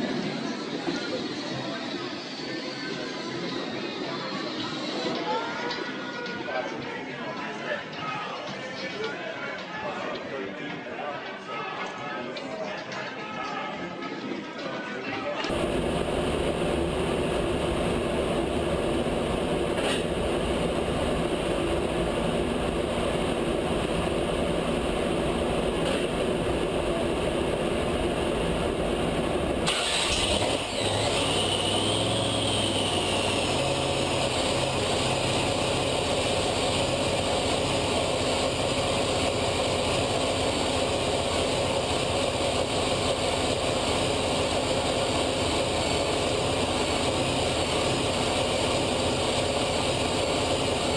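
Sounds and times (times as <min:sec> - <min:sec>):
brief falling whine: 0:15.5 - 0:35.2
car engine running: 0:15.5 - 0:50.9
road noise: 0:15.5 - 0:50.9.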